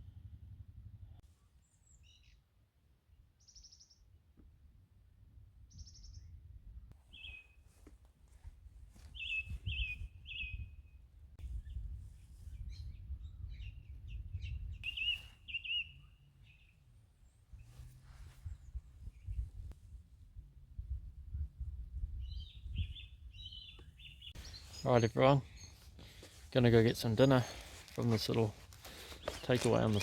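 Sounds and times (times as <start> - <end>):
low steady rumble: 0.0 - 1.2, 16.2 - 22.8
birds chirping: 7.0 - 7.6, 9.0 - 10.9, 12.6 - 17.7, 22.2 - 30.0.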